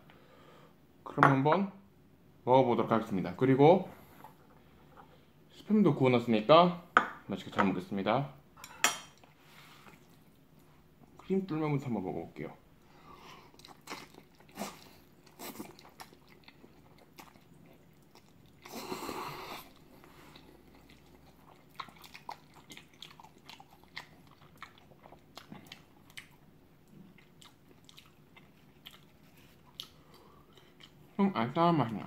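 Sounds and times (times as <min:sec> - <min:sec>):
chewing noodles with wet clicks: 0:13.5 - 0:18.7, 0:19.6 - 0:31.1.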